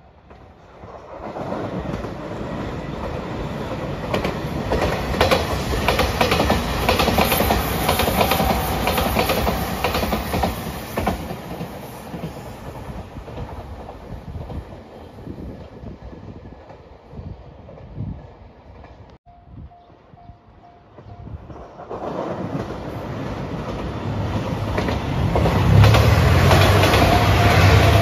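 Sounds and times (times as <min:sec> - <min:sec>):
electric train passing: 0:00.0 - 0:28.0
wheels clacking over rail joints: 0:00.2 - 0:14.6, 0:21.0 - 0:28.0.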